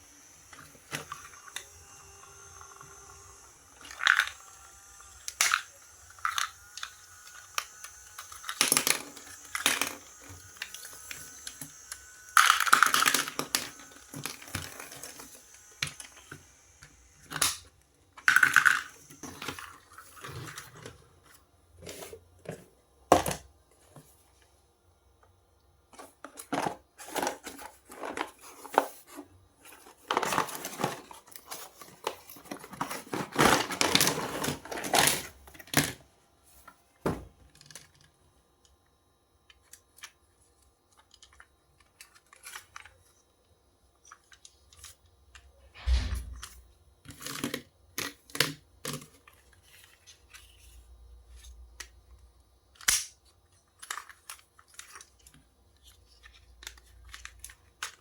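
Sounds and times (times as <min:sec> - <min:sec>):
packaging tearing and rustling: 0:26.4 - 0:36.0.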